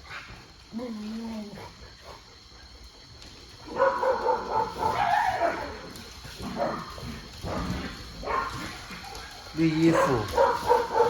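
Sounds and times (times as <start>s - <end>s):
dog high wavering calls: 3.7s - 5.9s.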